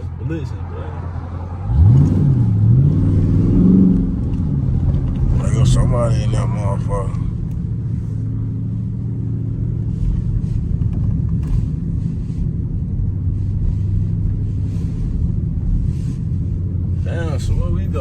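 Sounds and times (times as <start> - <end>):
car engine running at low speed: 0.0 - 18.0.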